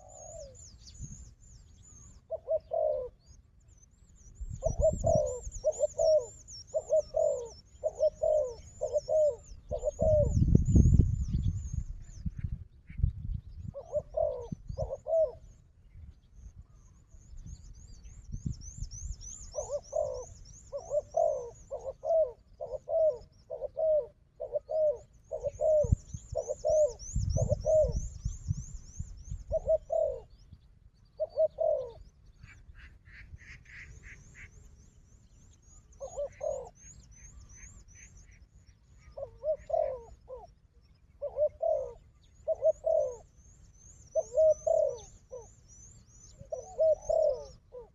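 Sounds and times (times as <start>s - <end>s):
doves cooing: 0.0s - 0.7s, 2.0s - 3.3s, 4.6s - 10.5s, 13.7s - 15.6s, 19.5s - 28.2s, 29.4s - 30.3s, 31.1s - 34.5s, 35.8s - 47.9s.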